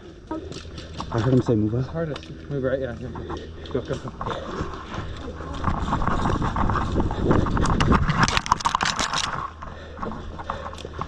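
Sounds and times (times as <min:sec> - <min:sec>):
running footsteps on rough ground: 0:00.0 - 0:11.0
gear rattling and scraping: 0:00.4 - 0:11.0.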